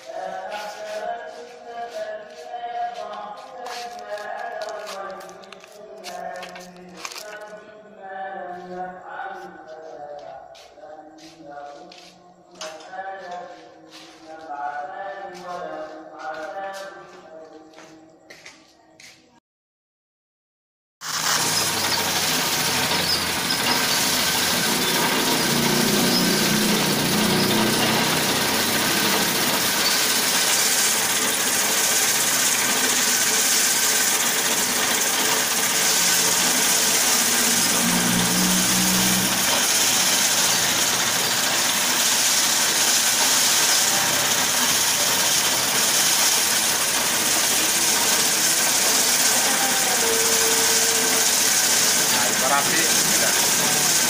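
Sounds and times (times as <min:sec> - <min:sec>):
rope winding machine humming: 0:21.0 - 0:54.0.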